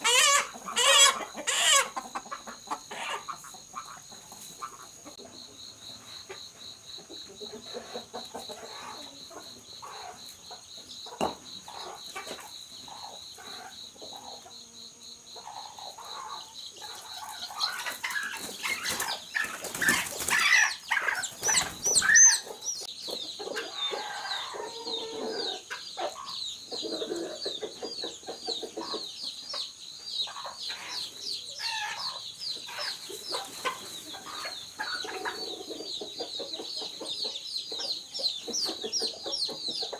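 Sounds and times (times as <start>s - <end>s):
chicken squawking: 0.0s - 2.0s, 17.7s - 22.5s
chickens clucking: 0.0s - 39.9s
wings flapping: 17.9s - 22.1s.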